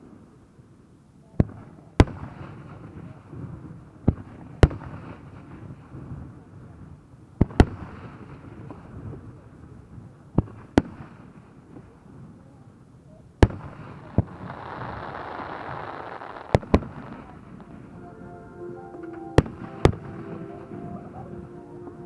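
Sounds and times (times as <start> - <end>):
fireworks bangs: 13.4 - 18.1, 18.9 - 21.4
fireworks hissing: 13.6 - 18.0.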